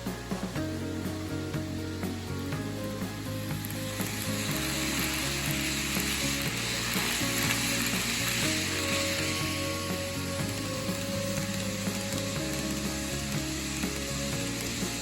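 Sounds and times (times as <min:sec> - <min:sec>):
mechanical gear noise: 0:01.5 - 0:15.0
hiss of approaching train: 0:01.9 - 0:15.0
model train wheel clicks: 0:03.6 - 0:09.6.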